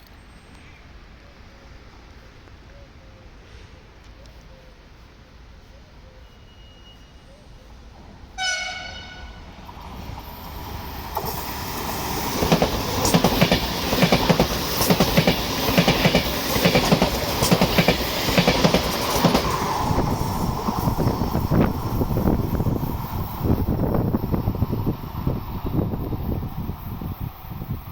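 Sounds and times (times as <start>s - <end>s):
train passing at speed: 6.3s - 27.9s
train horn blast: 8.4s - 9.5s.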